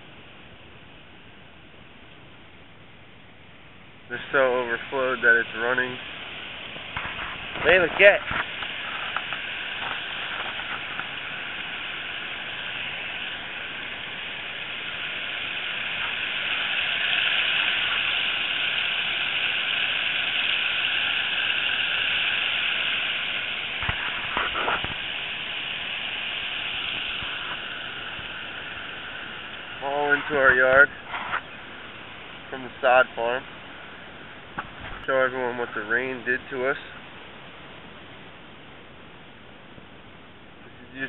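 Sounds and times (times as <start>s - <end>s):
floodwater rushing: 4.1s - 35.0s.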